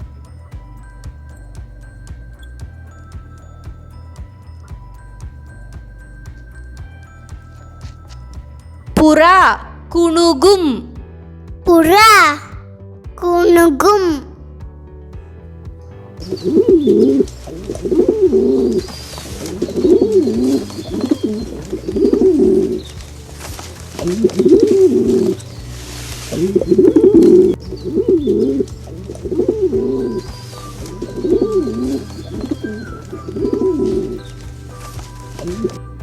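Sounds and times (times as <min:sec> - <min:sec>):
pigeons cooing: 0:16.2 - 0:36.0.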